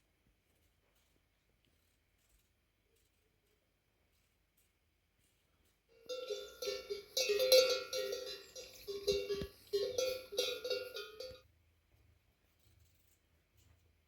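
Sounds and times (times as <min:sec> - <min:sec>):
metal clanking with ring: 0:06.0 - 0:11.4.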